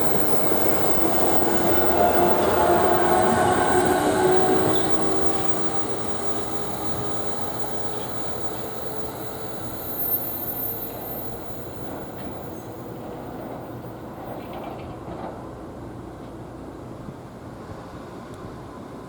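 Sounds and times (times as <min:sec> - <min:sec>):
thin high squeal: 0:00.0 - 0:14.7
train rolling along rails: 0:00.0 - 0:19.0.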